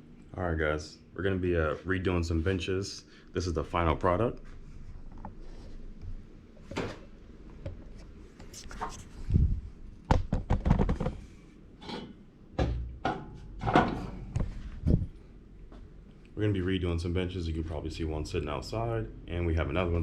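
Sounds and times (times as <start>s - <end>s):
knocks and thumps: 10.1s - 11.3s, 12.6s - 15.1s.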